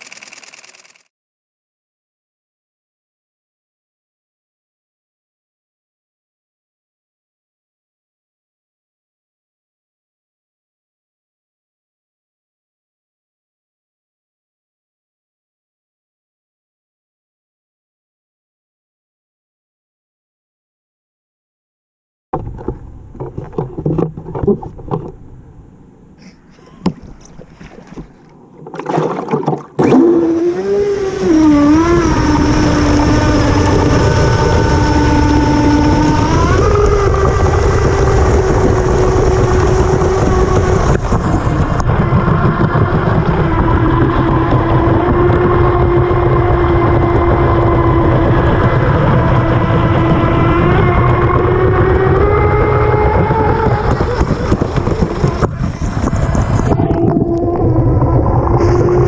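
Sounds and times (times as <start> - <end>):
water rushing: 26.6 - 41.8
electric motor whine: 29.8 - 59.0.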